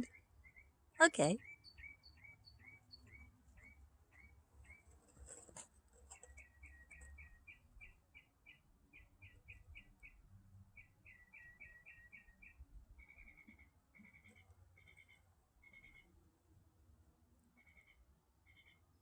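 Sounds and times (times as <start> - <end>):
mockingbird singing: 6.4 - 16.1.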